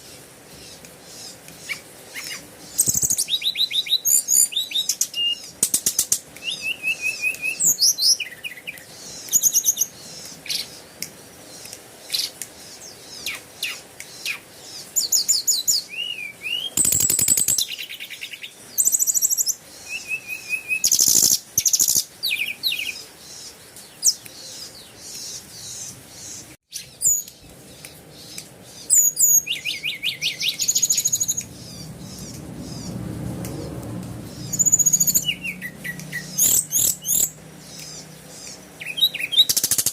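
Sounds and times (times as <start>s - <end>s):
small birds chirping: 0.0s - 39.9s
low hum: 30.5s - 38.5s.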